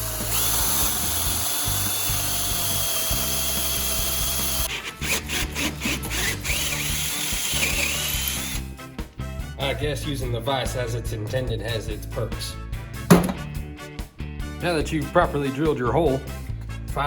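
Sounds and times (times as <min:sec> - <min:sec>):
drill bit squealing: 0:00.0 - 0:08.7
electric drill whining: 0:00.0 - 0:08.7
background music: 0:00.0 - 0:17.0.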